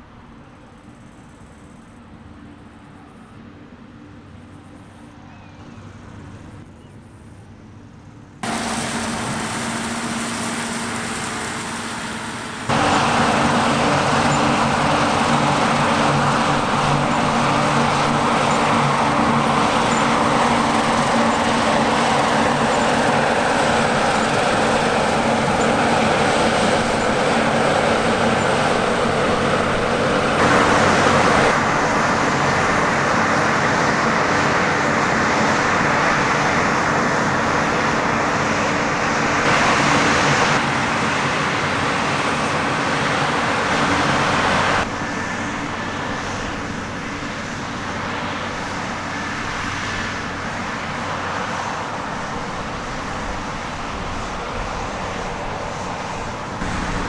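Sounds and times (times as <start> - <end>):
heavy diesel machinery running: 8.4 - 57.0.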